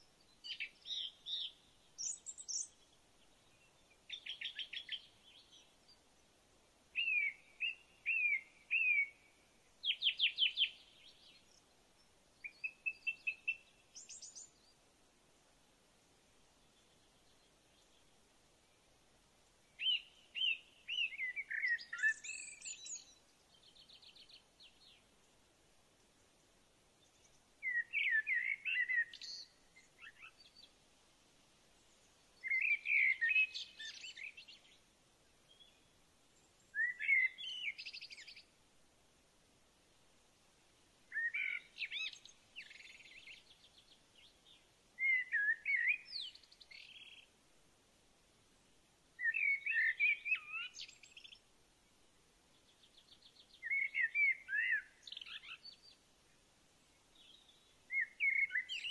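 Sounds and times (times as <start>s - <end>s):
songbird warbling: 7.0s - 9.2s, 19.8s - 23.2s, 27.6s - 30.7s, 32.4s - 34.6s, 36.7s - 38.4s, 41.1s - 43.6s, 45.0s - 47.2s, 49.2s - 51.4s, 53.6s - 55.8s, 57.2s - 58.9s.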